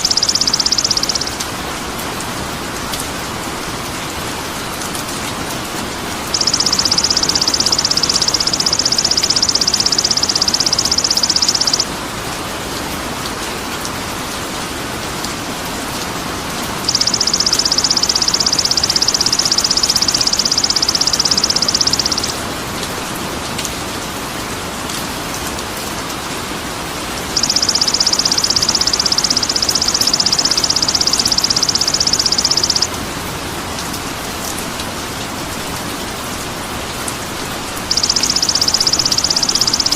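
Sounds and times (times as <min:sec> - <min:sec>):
rapid buzzing bird trill: 0:00.0 - 0:01.4, 0:06.3 - 0:11.9, 0:16.8 - 0:22.4, 0:27.4 - 0:33.0, 0:37.9 - 0:39.9
rain-like hiss: 0:32.9 - 0:37.9.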